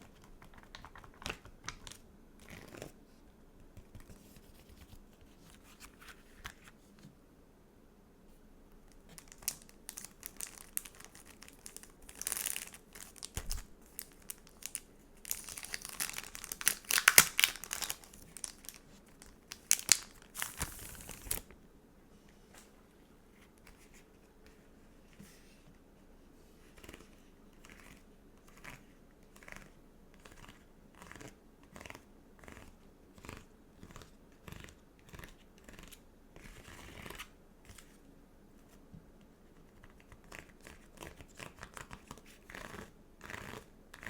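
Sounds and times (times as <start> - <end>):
packaging crinkling: 9.1 - 21.5.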